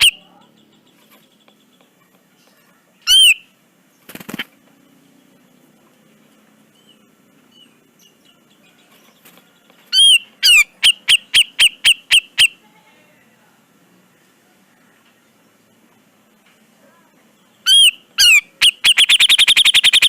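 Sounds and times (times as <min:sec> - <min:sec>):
bird harsh calls: 0:00.0 - 0:04.5, 0:09.2 - 0:12.6, 0:17.6 - 0:20.0.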